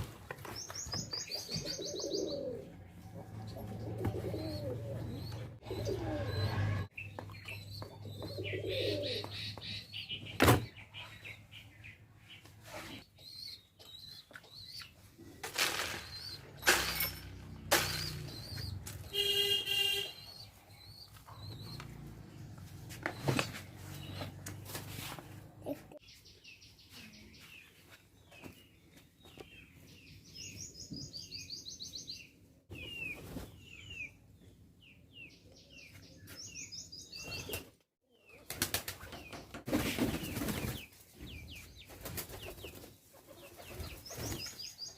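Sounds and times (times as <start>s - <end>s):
birds chirping and trilling: 0.5s - 24.4s, 26.0s - 44.9s
birds flapping wings: 38.4s - 40.9s.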